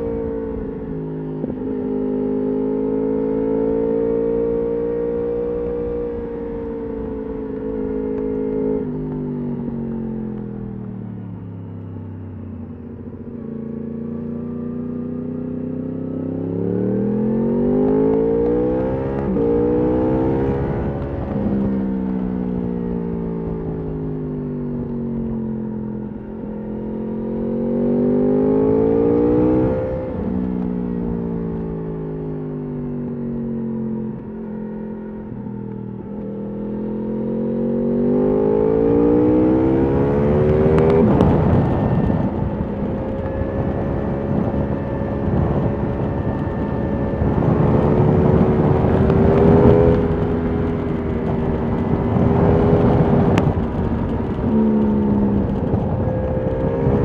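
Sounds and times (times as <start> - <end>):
motorcycle engine revving: 12.5 - 57.0.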